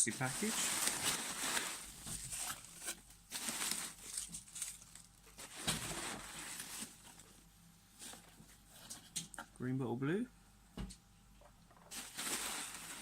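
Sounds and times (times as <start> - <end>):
packing material rustling: 0.0 - 8.9, 11.9 - 13.0.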